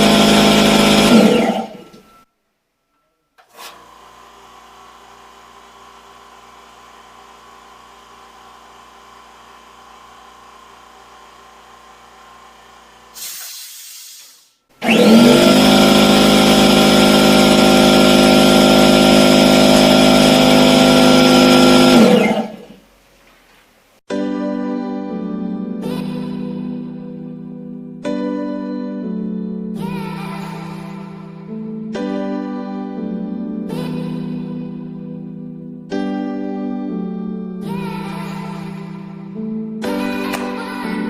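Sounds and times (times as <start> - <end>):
loud air compressor running: 0.0 - 1.9, 3.5 - 22.8
quiet air compressor running: 0.0 - 2.0, 3.5 - 22.8
air hiss: 13.1 - 14.6.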